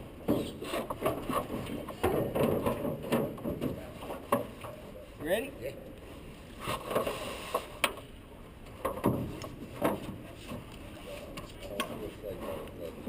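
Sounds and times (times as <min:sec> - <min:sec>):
paddles knocking on hull: 0:00.2 - 0:04.9, 0:08.8 - 0:10.7.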